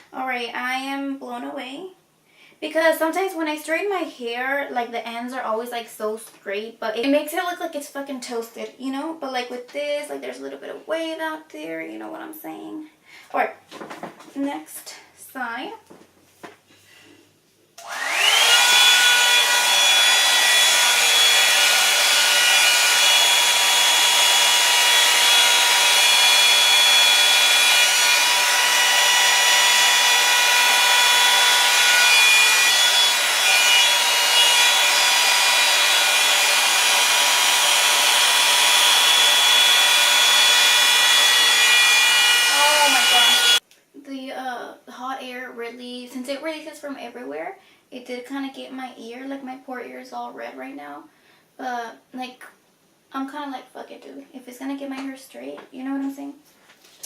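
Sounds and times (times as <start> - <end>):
hair dryer brush blowing: 17.8 - 43.6.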